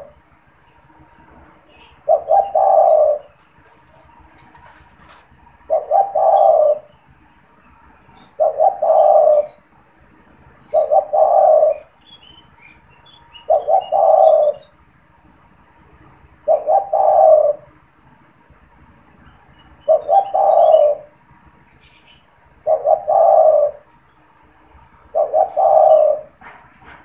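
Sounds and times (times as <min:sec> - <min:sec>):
small birds chirping faintly: 0:00.0 - 0:27.0
dove cooing: 0:01.7 - 0:07.0, 0:08.1 - 0:09.7, 0:10.6 - 0:12.0, 0:12.6 - 0:14.7, 0:16.4 - 0:17.8, 0:19.8 - 0:21.2, 0:22.6 - 0:24.0, 0:24.8 - 0:27.0.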